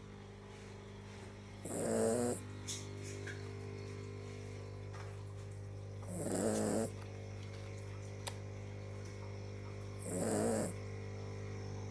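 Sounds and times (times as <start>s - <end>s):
steady low hum: 0.0s - 11.9s
small dog snoring: 1.6s - 2.4s, 6.0s - 7.0s, 10.0s - 10.8s.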